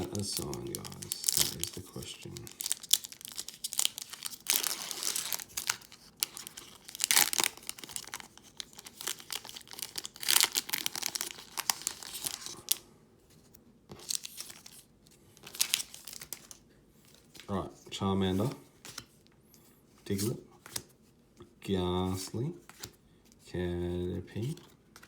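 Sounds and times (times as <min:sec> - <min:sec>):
cards being handled: 0:00.0 - 0:12.7, 0:18.3 - 0:21.0, 0:22.1 - 0:23.4
foil wrapper tearing and crinkling: 0:00.0 - 0:12.8.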